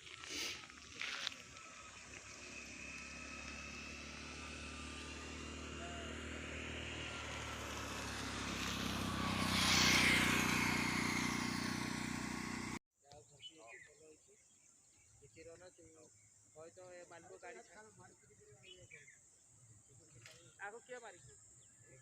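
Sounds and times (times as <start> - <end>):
motor vehicle passing: 0.3 - 12.8.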